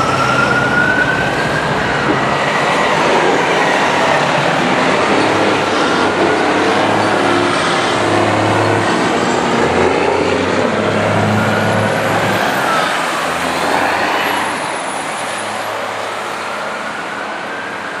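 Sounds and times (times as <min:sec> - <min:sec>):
heavy vehicle rumbling: 0:00.0 - 0:13.8.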